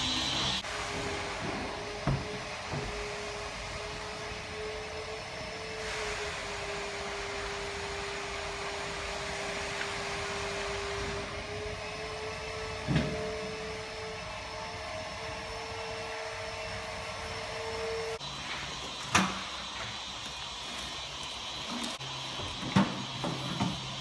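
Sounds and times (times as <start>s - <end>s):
electric motor whining: 0.0s - 0.6s
hiss: 0.0s - 1.4s, 3.0s - 11.3s.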